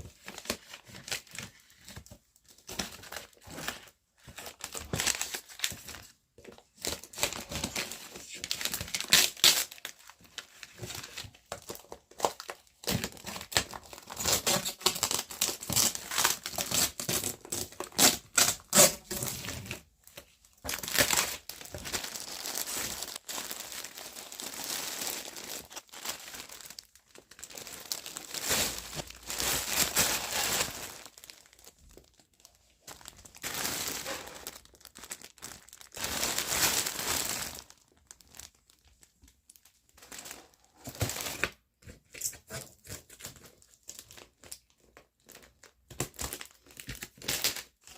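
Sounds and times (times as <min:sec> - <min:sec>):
packaging crinkling and rustling: 0:00.0 - 0:47.9
packaging tearing: 0:07.0 - 0:10.0, 0:11.1 - 0:19.8, 0:20.7 - 0:32.2.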